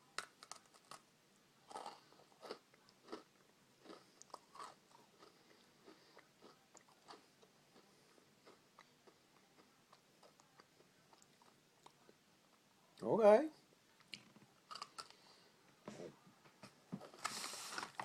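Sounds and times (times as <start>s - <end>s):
crunchy chewing: 1.7s - 12.6s, 14.0s - 15.3s.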